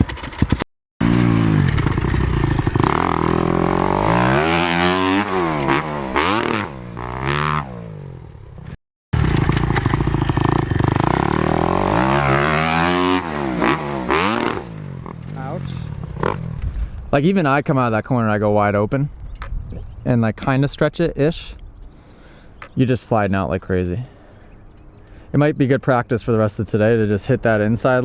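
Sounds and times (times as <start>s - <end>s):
dirt bike engine revving: 0.0s - 17.2s.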